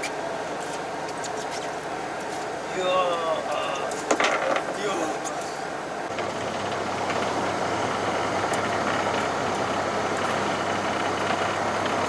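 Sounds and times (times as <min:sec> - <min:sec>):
boat engine humming: 0:05.8 - 0:12.0.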